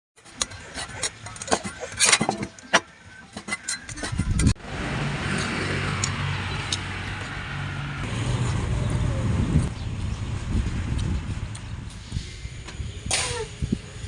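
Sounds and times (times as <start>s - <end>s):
motor vehicle engine hum: 3.9s - 14.0s
sharp clicks and knocks: 5.3s - 8.2s.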